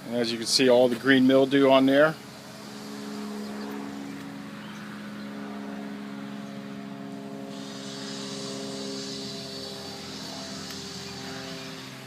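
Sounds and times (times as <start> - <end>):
engine humming: 0.0 - 12.0
hiss: 7.4 - 12.0.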